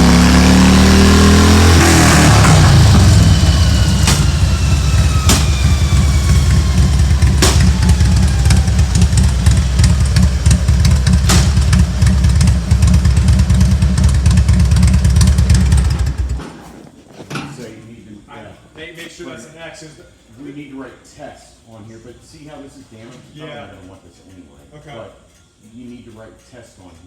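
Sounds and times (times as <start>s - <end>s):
motorcycle engine idling: 0.0s - 16.6s
sharp clicks: 1.8s - 16.5s.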